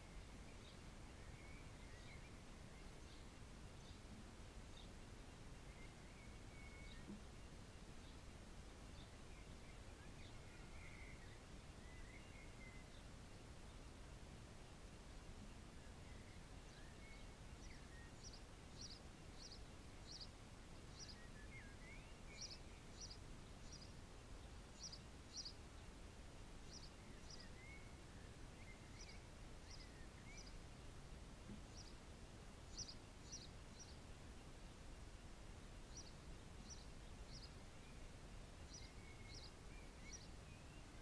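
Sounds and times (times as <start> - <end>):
low background hiss: 0.0 - 41.0
birds chirping: 14.6 - 41.0.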